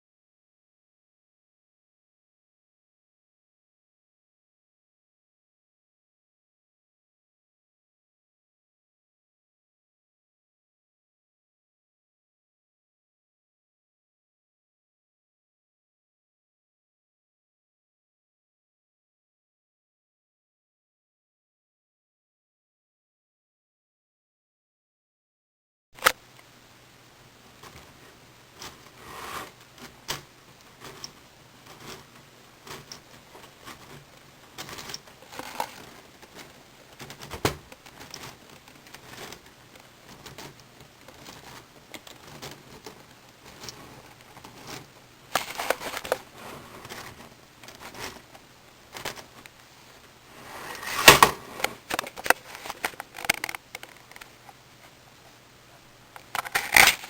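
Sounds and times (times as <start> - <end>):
plastic pieces clicking and rattling: 50.7 - 54.3, 56.2 - 57.0.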